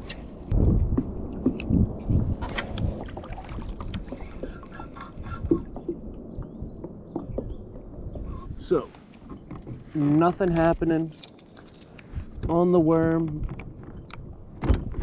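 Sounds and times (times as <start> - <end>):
wind rumble on microphone: 0.0 - 15.0
knocks and clicks against kayak hull: 5.3 - 8.0.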